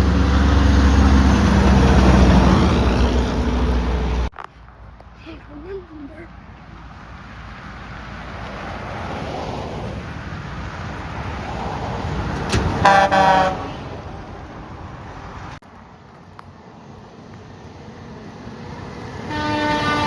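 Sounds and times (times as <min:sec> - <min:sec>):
traffic road noise: 0:00.0 - 0:20.0
truck air horn blasts: 0:12.8 - 0:13.9, 0:19.3 - 0:20.0.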